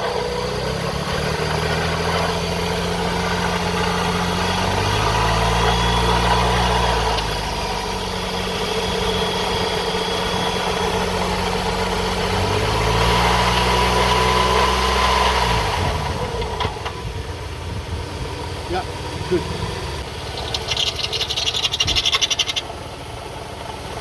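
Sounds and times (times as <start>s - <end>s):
car engine revving: 0.0s - 24.0s
steady high whine: 5.9s - 12.4s.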